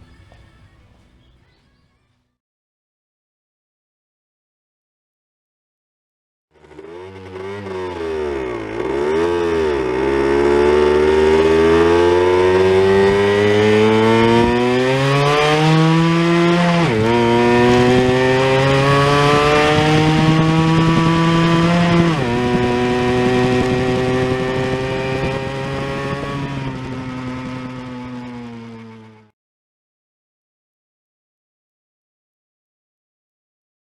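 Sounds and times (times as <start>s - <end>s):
two-stroke motorcycle engine revving: 6.5s - 29.3s.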